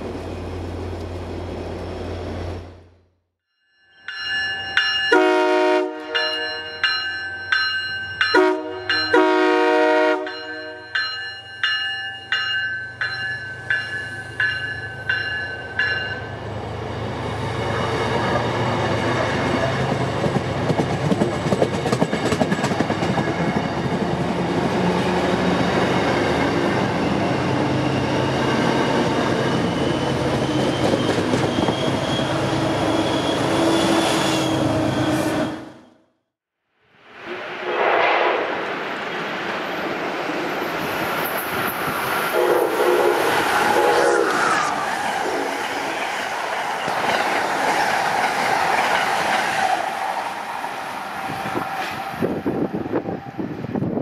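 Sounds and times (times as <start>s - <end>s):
train wheel and rail noise: 0.0s - 3.0s, 4.0s - 36.0s, 37.0s - 54.0s
bell ringing: 3.5s - 5.4s, 6.0s - 9.4s, 10.2s - 16.4s
train horn blasts: 5.1s - 6.8s, 8.3s - 10.8s, 42.3s - 44.4s.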